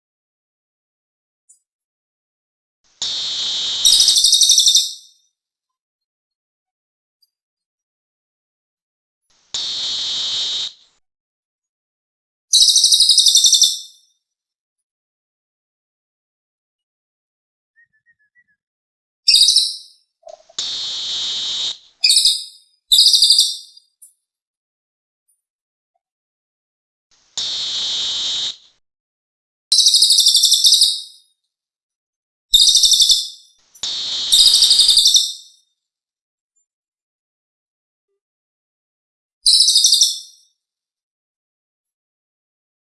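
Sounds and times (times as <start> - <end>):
buzzy bird call: 3.0 - 5.0, 9.5 - 10.9, 19.3 - 23.6, 27.4 - 28.8, 33.8 - 35.4
bird singing buzzy trills: 3.0 - 5.1, 33.8 - 35.4
rapid bird trill: 3.0 - 5.2, 12.5 - 14.0, 19.3 - 23.8, 29.7 - 31.1, 32.6 - 35.5.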